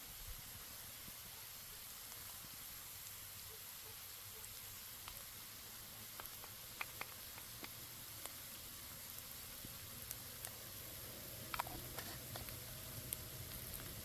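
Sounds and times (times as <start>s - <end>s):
food sizzling in a pan: 0.0s - 14.0s
sharp pops: 6.1s - 8.4s.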